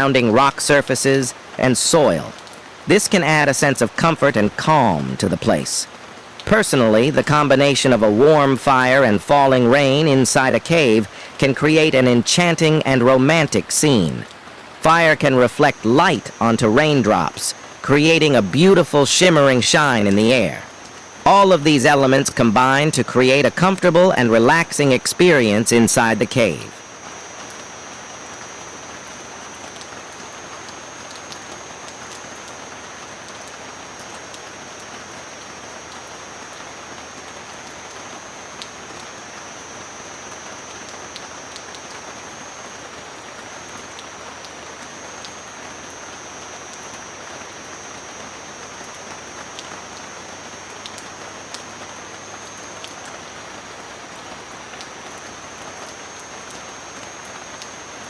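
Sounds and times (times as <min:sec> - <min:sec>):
sharp ticks of raindrops: 0:00.0 - 0:58.0
steady rain falling: 0:00.0 - 0:58.0
thin high tone: 0:14.8 - 0:29.2.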